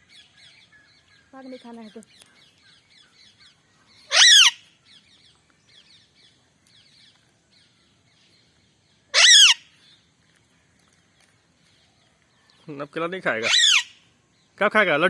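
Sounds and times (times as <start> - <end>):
faint birds chirping: 0.0 - 15.0
parrot screeching: 4.1 - 4.6, 9.1 - 9.6, 13.4 - 14.0.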